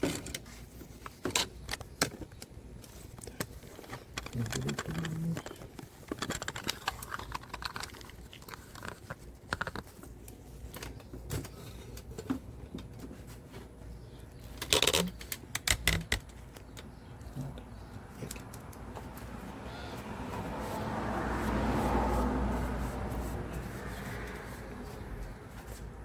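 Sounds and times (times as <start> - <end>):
metal tools clicking and clinking: 3.3 - 9.8.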